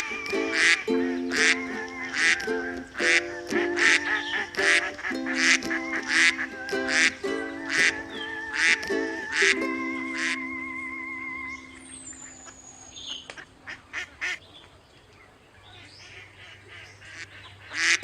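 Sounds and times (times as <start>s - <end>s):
duck quacking: 0.0s - 10.4s, 16.1s - 18.0s
background music with held notes: 0.0s - 12.5s.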